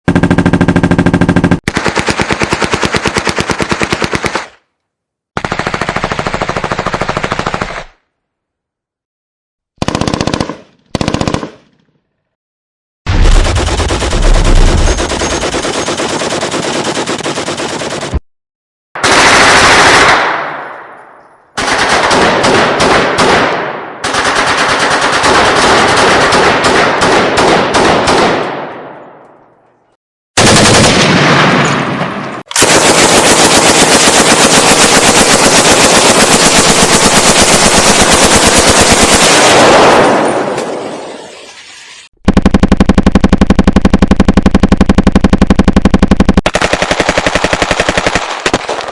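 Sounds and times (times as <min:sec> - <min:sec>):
machine gun firing bursts: 0:00.1 - 0:04.6, 0:05.4 - 0:08.0, 0:09.8 - 0:11.7, 0:13.1 - 0:18.2, 0:19.0 - 0:20.2, 0:21.6 - 0:28.4, 0:30.4 - 0:31.2, 0:32.5 - 0:40.2, 0:42.2 - 0:48.9.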